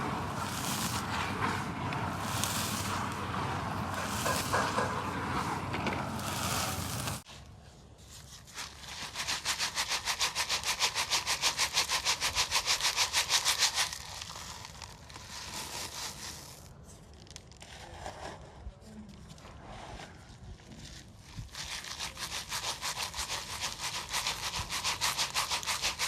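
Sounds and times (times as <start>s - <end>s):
cement crumbling and rustling: 0.0s - 7.3s
dry cement rasping when sifted: 0.0s - 26.0s.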